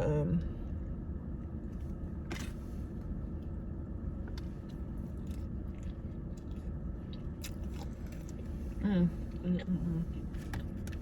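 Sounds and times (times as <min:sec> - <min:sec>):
steady low hum: 0:00.0 - 0:11.0
person chewing food: 0:04.3 - 0:08.6.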